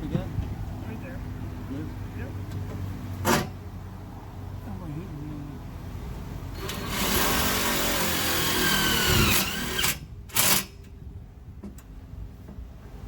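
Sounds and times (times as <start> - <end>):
power drill driving screw: 6.6 - 10.7.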